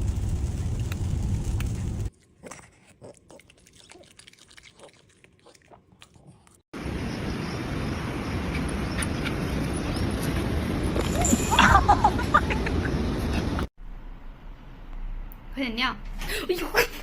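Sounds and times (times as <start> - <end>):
low rumbling background noise: 0.0 - 2.1.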